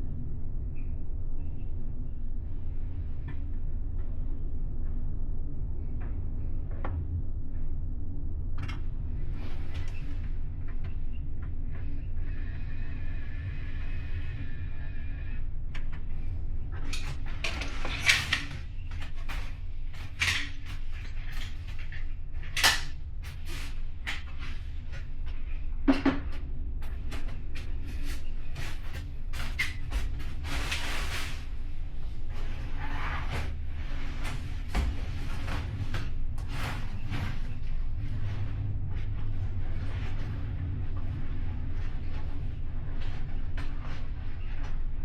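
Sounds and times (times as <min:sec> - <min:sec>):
ship engines low rumble: 0:23.0 - 0:45.0.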